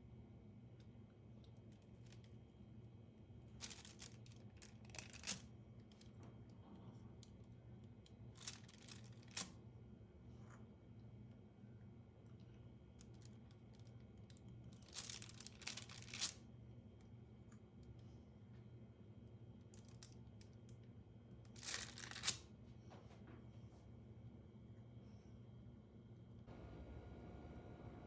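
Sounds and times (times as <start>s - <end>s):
low steady hum: 0.0s - 28.0s
rustling with light clicks: 3.6s - 9.5s, 12.3s - 16.4s.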